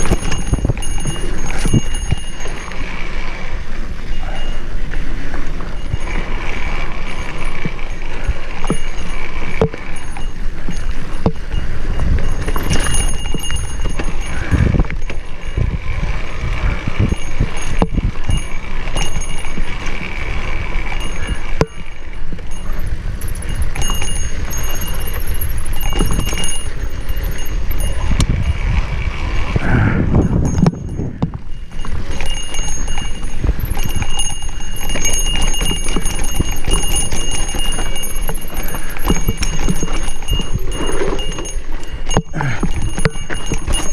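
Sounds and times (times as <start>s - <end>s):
mountain bike rattling on dirt: 0.0s - 43.9s
wind buffeting microphone: 0.0s - 43.9s.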